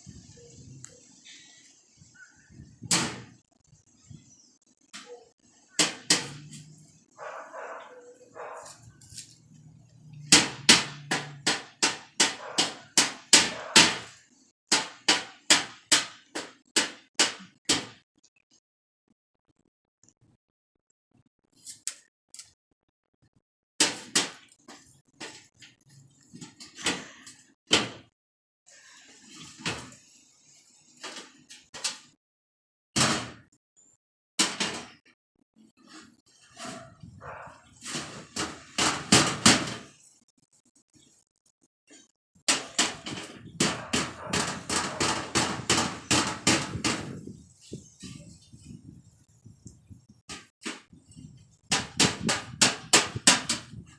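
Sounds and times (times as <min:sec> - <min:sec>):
irregular knocks and bangs: 0:10.2 - 0:14.1, 0:42.5 - 0:47.2.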